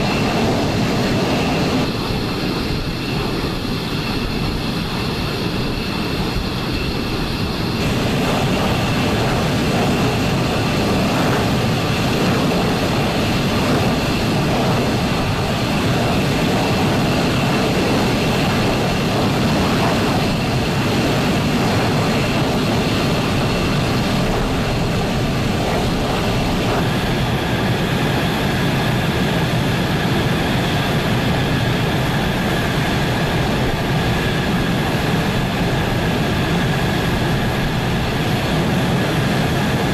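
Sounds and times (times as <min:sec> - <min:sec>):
fighter jet engines running: 0:00.0 - 0:39.9.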